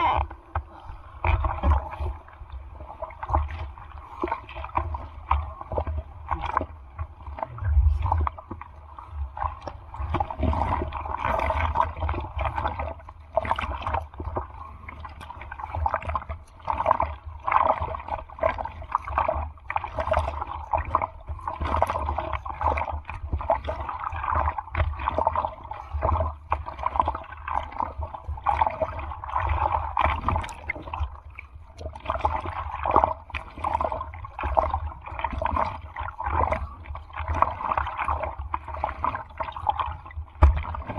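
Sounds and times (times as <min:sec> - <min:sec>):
seawater sloshing and splashing: 0:00.0 - 0:40.9
wind buffeting microphone: 0:07.5 - 0:08.3.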